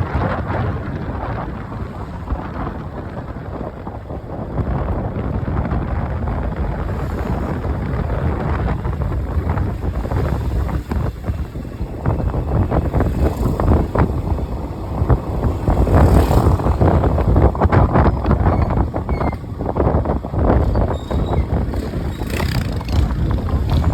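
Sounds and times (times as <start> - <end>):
road noise: 0.0 - 23.9
wind buffeting microphone: 0.0 - 23.9
motorcycle engine running: 20.3 - 23.9.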